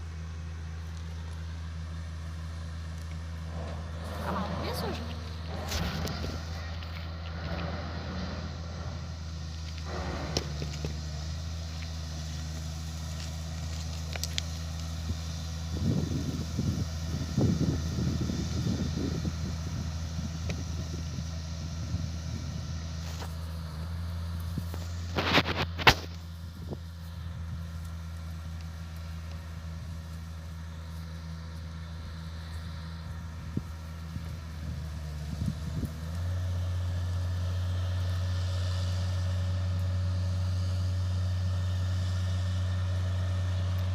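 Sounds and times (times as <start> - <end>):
diesel engine running: 0.0 - 43.9
wind buffeting microphone: 3.5 - 11.3, 15.0 - 22.9, 33.2 - 36.2.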